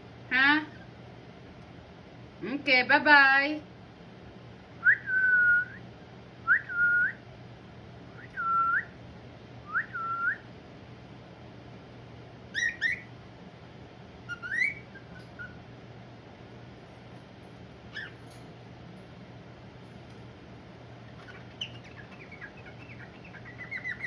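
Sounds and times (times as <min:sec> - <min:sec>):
cockatiel whistling: 0:12.5 - 0:13.1, 0:14.3 - 0:15.6, 0:17.9 - 0:18.2, 0:21.2 - 0:24.0.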